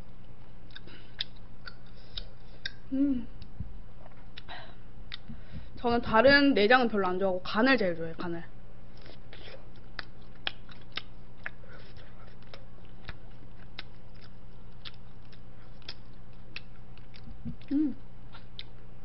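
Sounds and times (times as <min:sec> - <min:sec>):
close chewing: 0:00.7 - 0:02.8, 0:08.9 - 0:18.9
short voice hum: 0:02.9 - 0:03.4, 0:17.5 - 0:18.0
wet mouth clicks and smacks: 0:09.8 - 0:11.6, 0:12.4 - 0:17.7.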